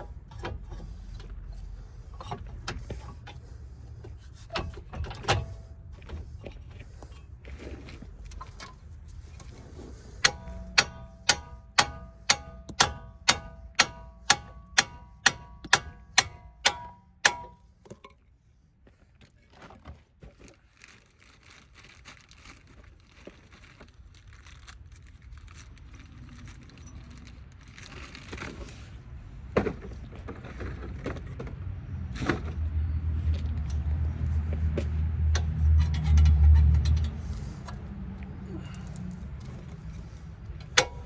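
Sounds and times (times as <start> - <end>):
hammer striking steel: 10.2 - 17.6.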